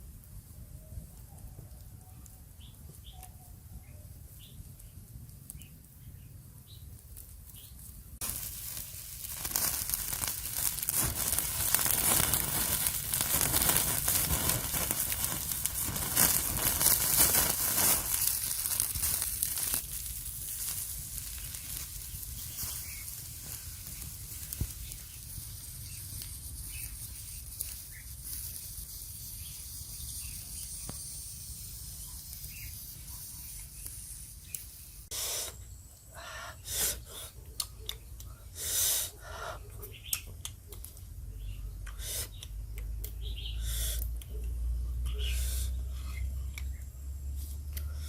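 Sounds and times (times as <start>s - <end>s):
faint bird chirps: 0.7s - 7.8s, 21.3s - 38.6s, 39.2s - 47.1s
dense rustling and tearing: 8.2s - 25.1s.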